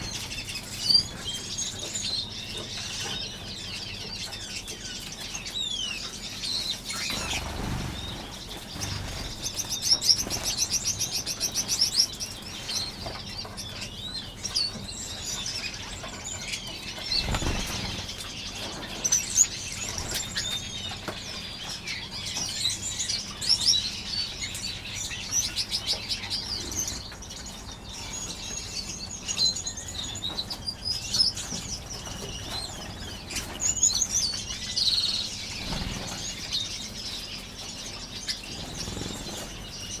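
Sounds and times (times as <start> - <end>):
finches chirping: 0.0 - 40.0
bird wingbeats: 6.9 - 11.1, 17.0 - 18.2, 35.4 - 36.6.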